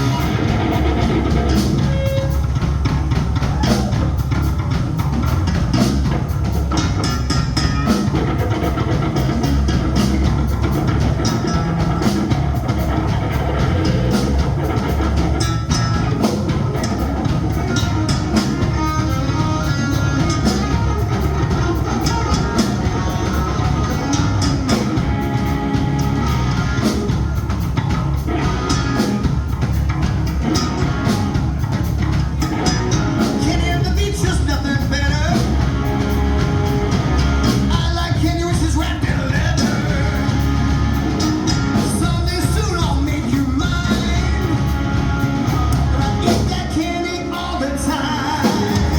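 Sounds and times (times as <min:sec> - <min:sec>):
rock music: 0:00.0 - 0:48.9
person singing: 0:33.2 - 0:35.7, 0:37.4 - 0:48.9.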